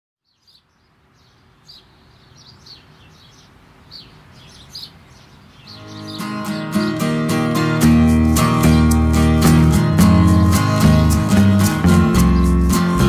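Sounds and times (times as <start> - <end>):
birds chirping: 0.2 - 13.0
music: 5.8 - 13.0.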